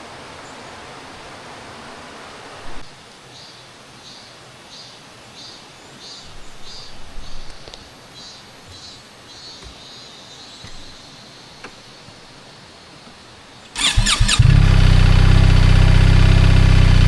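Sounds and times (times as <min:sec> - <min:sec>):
mountain stream rushing: 0:00.0 - 0:09.2.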